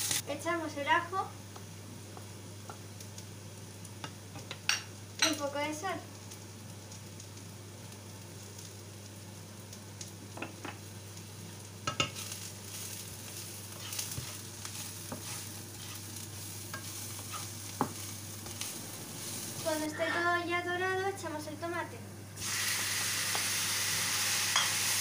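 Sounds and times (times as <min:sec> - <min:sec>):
onion frying sizzle: 0:00.0 - 0:25.0
wooden spatula scraping pan: 0:13.7 - 0:20.3.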